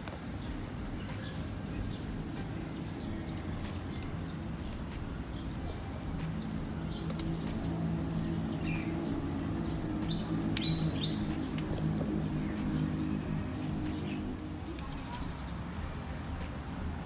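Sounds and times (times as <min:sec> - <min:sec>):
small birds chirping: 0:00.0 - 0:17.0
steady low hum: 0:00.0 - 0:17.0
sharp clicks: 0:06.2 - 0:15.5.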